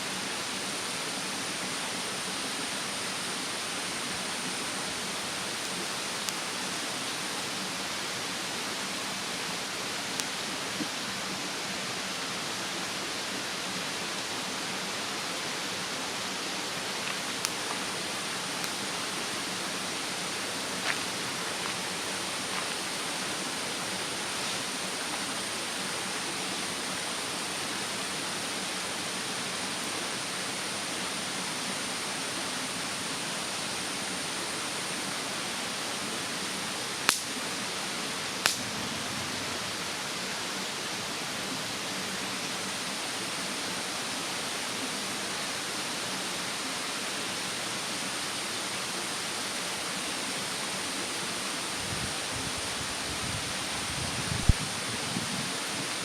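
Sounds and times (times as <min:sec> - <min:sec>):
mountain stream rushing: 0:00.0 - 0:56.0
bonfire burning: 0:37.0 - 0:37.3, 0:38.4 - 0:39.0
burning wood popping: 0:38.4 - 0:38.7.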